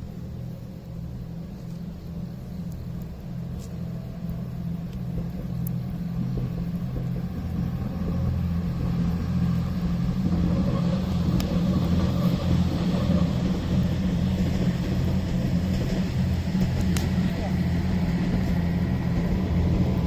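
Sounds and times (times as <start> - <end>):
campfire crackles: 0.0 - 20.0
low engine rumble: 0.0 - 20.0.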